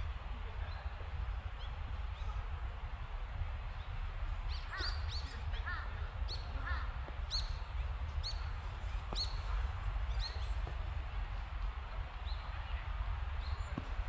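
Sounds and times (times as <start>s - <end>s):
low steady rumble: 0.0s - 14.0s
small birds chirping: 3.7s - 11.1s, 12.1s - 14.0s.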